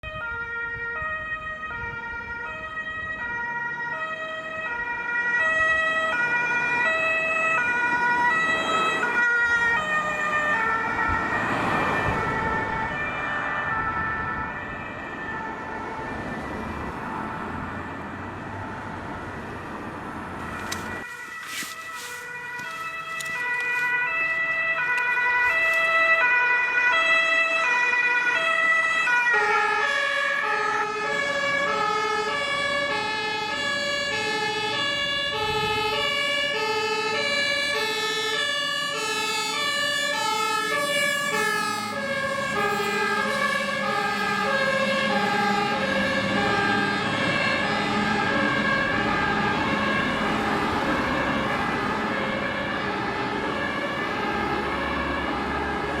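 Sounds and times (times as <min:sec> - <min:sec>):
second two-tone siren: 0:00.0 - 0:18.1, 0:18.8 - 0:56.0
engine and road noise: 0:00.0 - 0:56.0
two-tone fire engine siren: 0:00.0 - 0:56.0.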